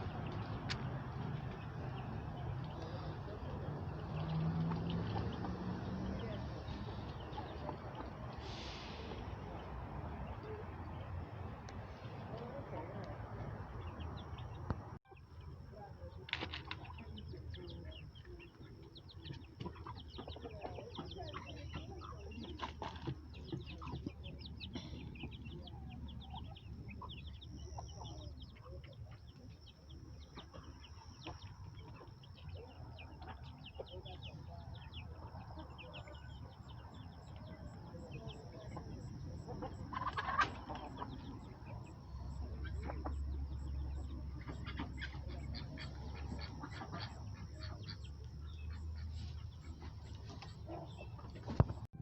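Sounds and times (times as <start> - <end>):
chickens clucking: 0.0 - 52.0
chicks peeping and chirping: 0.0 - 52.0.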